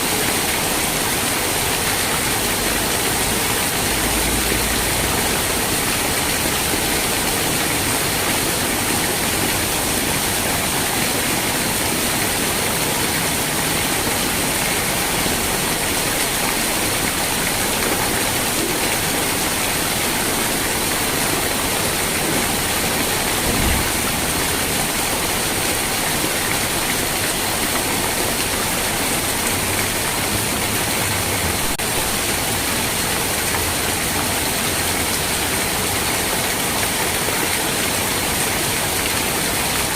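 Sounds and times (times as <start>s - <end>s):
steady rain: 0.0s - 39.9s
soft low thump: 23.4s - 24.0s.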